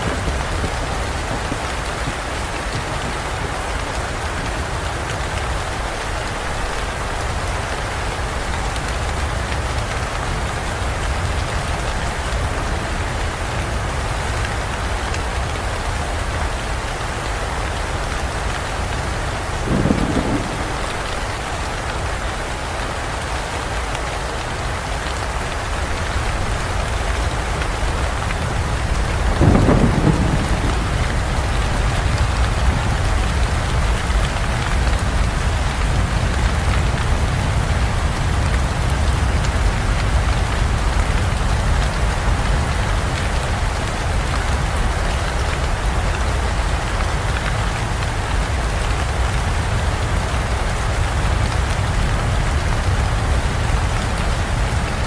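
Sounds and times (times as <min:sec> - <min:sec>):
low thunder rumbling: 0:00.0 - 0:05.0, 0:16.1 - 0:22.5, 0:26.2 - 0:43.2
thunder clap: 0:00.0 - 0:06.0, 0:18.2 - 0:22.5, 0:26.1 - 0:43.2
rain falling in a forest: 0:00.0 - 0:55.0.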